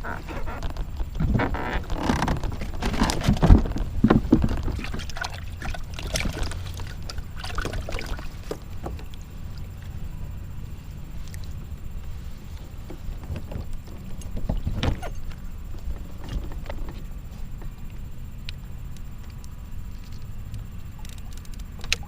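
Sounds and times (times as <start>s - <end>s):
knocks against a kayak: 2.3s - 5.0s
water splashing: 2.5s - 10.6s.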